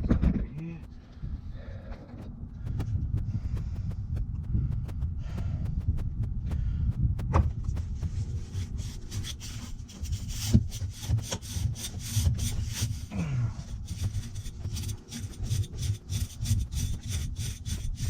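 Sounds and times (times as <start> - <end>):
brush scrubbing metal fins: 7.7 - 18.0.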